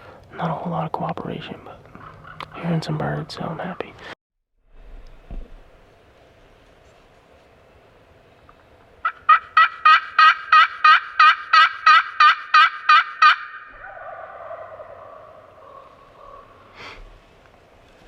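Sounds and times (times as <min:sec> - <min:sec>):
turkey yelps: 0:09.0 - 0:16.7.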